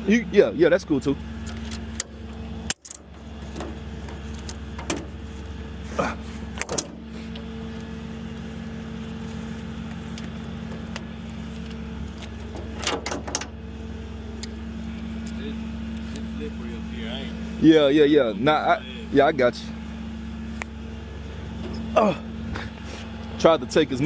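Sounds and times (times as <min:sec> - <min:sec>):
tow truck engine idling: 0:00.0 - 0:24.0
knocks and clanks: 0:01.6 - 0:05.2, 0:06.5 - 0:07.1, 0:12.1 - 0:13.6.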